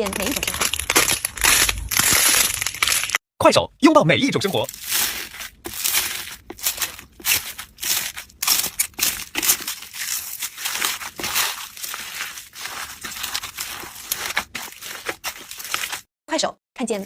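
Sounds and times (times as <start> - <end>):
slime crackling and crunching: 0.0 - 3.2, 4.4 - 16.1.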